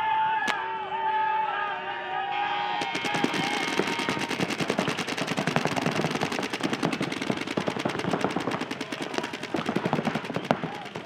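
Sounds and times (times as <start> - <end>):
paintball markers firing: 0.4 - 0.6, 2.8 - 11.0.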